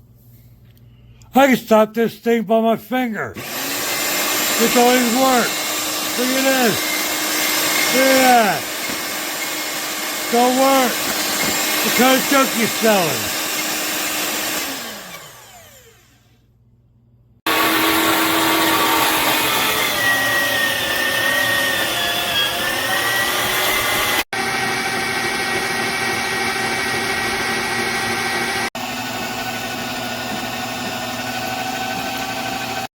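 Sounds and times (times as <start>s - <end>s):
meat grinder motor whining: 3.4s - 16.3s, 17.5s - 32.9s.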